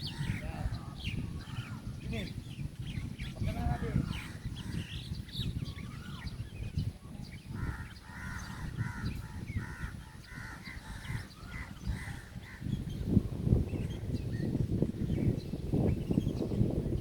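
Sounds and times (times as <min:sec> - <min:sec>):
harsh bird caws: 0:07.6 - 0:12.6.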